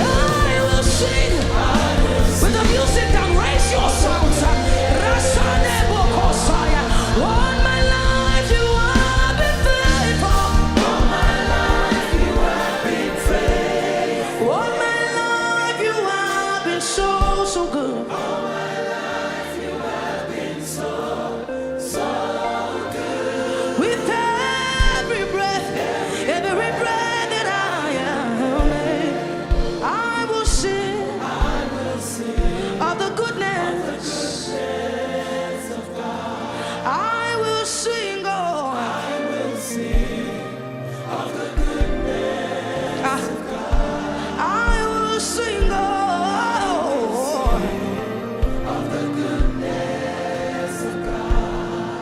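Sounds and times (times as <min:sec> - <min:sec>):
heavy drum-like beat: 0:00.0 - 0:14.1
group singing gospel song: 0:00.0 - 0:52.0.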